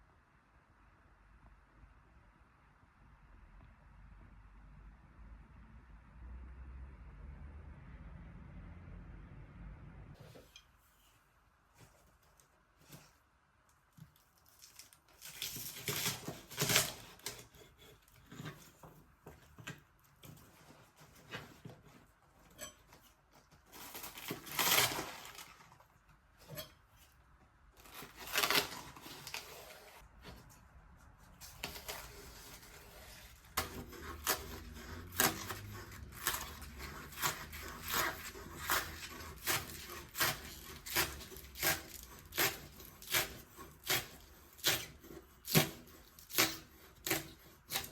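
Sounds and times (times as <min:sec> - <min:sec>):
tearing and rustling: 0:14.0 - 0:18.8, 0:19.5 - 0:26.7, 0:27.8 - 0:47.9.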